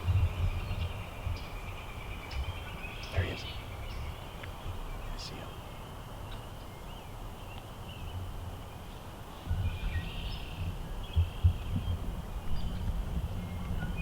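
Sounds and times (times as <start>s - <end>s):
wind buffeting microphone: 0.0s - 14.0s
faint bird chirps: 0.3s - 8.2s.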